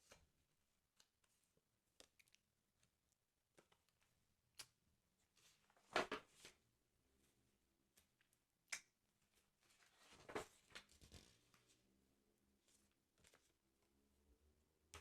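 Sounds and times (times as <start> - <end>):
paper rustling: 9.6 - 11.8.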